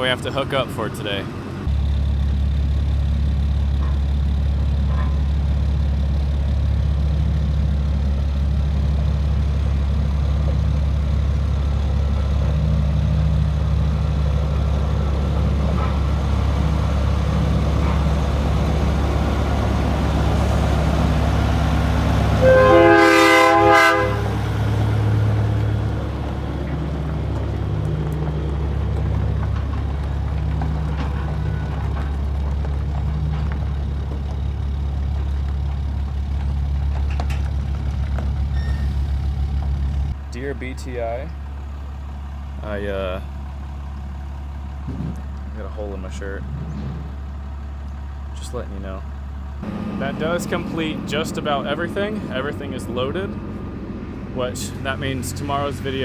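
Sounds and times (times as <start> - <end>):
large diesel engine droning: 0.0 - 56.0
loud horn: 22.3 - 25.0, 30.9 - 32.1.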